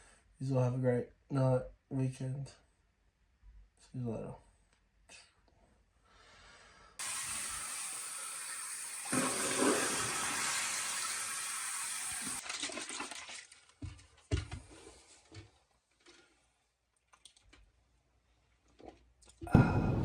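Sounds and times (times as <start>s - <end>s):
water rushing: 7.0s - 12.4s.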